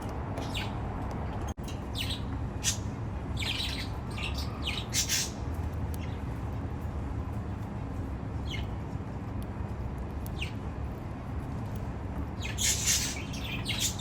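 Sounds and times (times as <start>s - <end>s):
steady low hum: 0.0s - 14.0s
baby budgies squawking and chirping: 2.0s - 5.4s, 12.4s - 14.0s.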